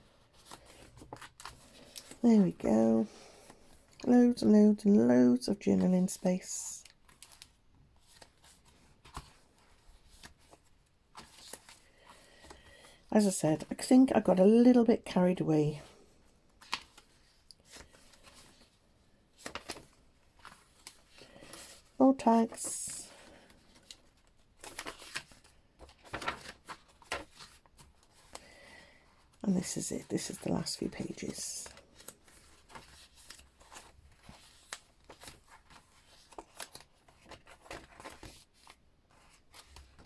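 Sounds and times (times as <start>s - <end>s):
paper rustling: 0.0s - 2.2s, 6.9s - 12.7s, 16.5s - 40.0s
pages turning: 0.2s - 2.2s, 6.8s - 12.7s, 16.5s - 28.6s, 29.2s - 40.0s.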